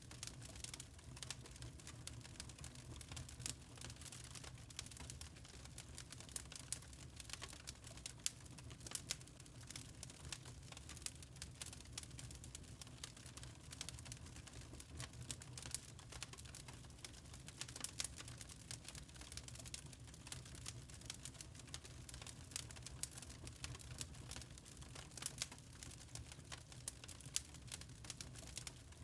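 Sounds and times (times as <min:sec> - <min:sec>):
burning charcoal crackling: 0:00.0 - 0:29.0.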